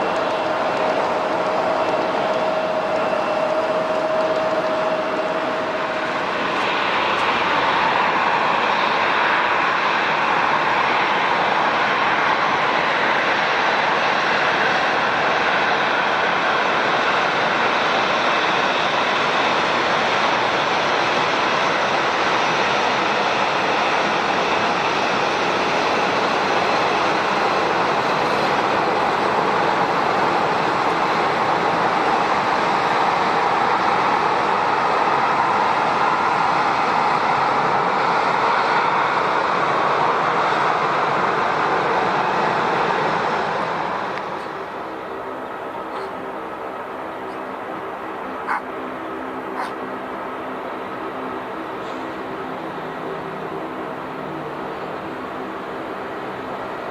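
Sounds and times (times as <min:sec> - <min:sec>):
jet engines running: 0:00.0 - 0:56.9.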